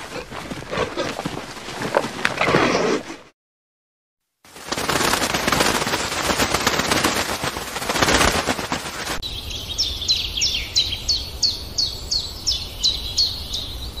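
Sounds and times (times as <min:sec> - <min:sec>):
crackling rushing noise: 0:04.5 - 0:09.2
bird chirping: 0:09.2 - 0:14.0.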